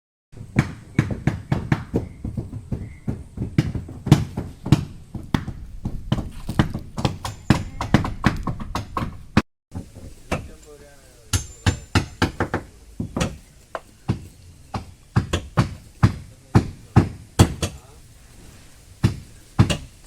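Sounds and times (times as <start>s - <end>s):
hammering on a boat: 11.3s - 13.4s, 14.1s - 17.8s, 19.0s - 19.9s.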